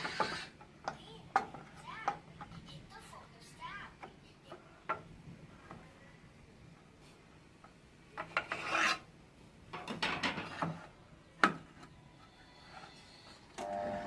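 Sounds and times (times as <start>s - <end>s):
scraping and rubbing: 0.0s - 0.6s, 8.2s - 9.1s.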